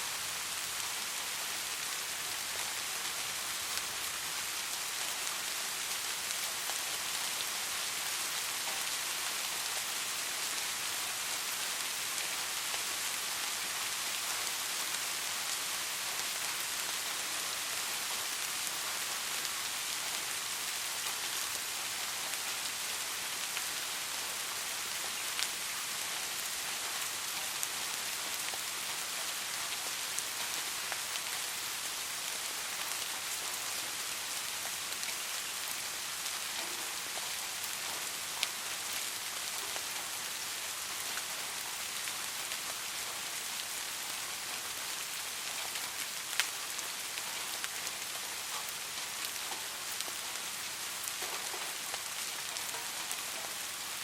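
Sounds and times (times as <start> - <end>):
soft rain hissing: 0.0 - 54.0.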